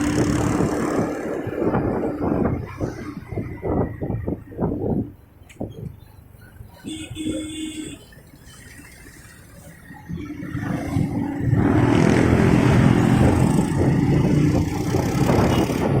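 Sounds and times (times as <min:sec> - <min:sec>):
motorcycle engine pulling away: 0:00.0 - 0:01.6, 0:10.1 - 0:16.0
broad rush of noise: 0:00.0 - 0:16.0.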